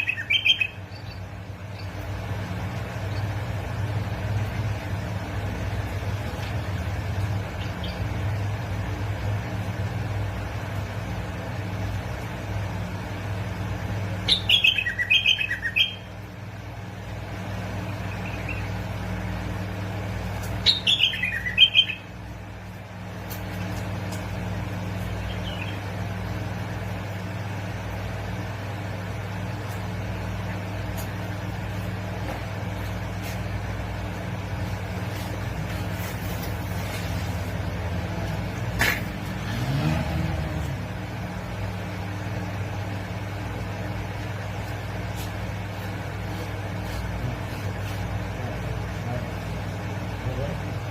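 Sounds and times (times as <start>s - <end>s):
bird singing: 0.0s - 2.1s, 14.2s - 16.1s, 17.8s - 18.9s, 20.6s - 22.2s, 25.1s - 26.0s.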